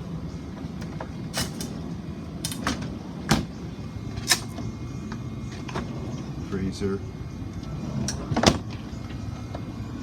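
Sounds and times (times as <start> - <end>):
cabinet doors opening and shutting: 0.8 - 1.8, 2.4 - 3.6, 8.1 - 8.7.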